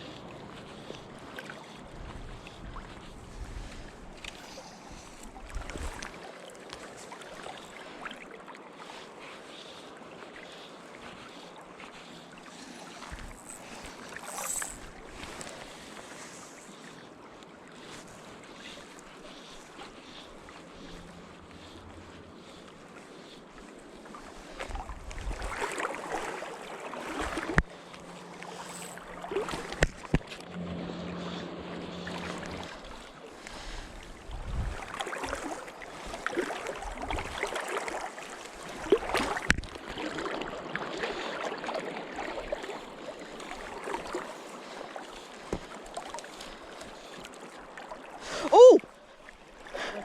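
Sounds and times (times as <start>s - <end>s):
wind on the microphone: 1.9s - 4.3s, 5.3s - 6.1s, 24.7s - 25.6s, 33.8s - 35.0s
river water rushing: 25.4s - 33.9s.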